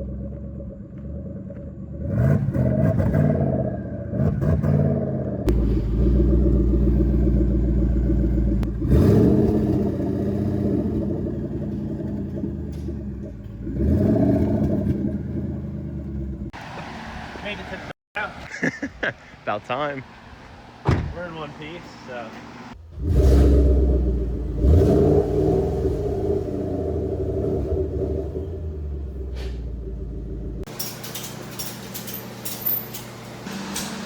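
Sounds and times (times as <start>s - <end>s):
car engine revving hard: 2.0s - 12.5s, 13.6s - 15.7s, 22.9s - 29.3s
heavy low rumble: 5.2s - 13.8s, 25.6s - 30.7s.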